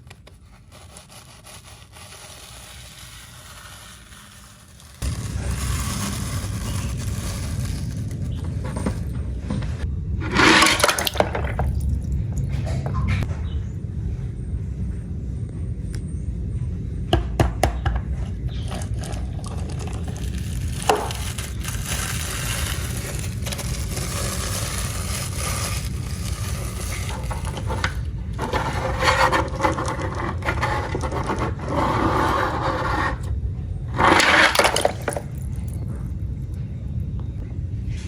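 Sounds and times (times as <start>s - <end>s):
toy cars clattering and scraping: 0.0s - 11.9s, 18.5s - 33.2s, 33.9s - 35.8s
low rumble: 4.4s - 17.4s.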